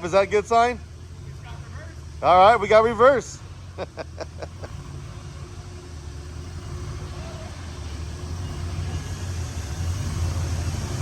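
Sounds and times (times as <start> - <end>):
car engine low drone: 0.0 - 11.0.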